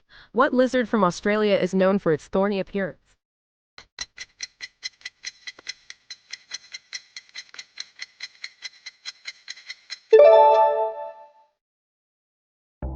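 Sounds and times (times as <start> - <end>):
clock-like timer ticks: 4.0 - 10.1.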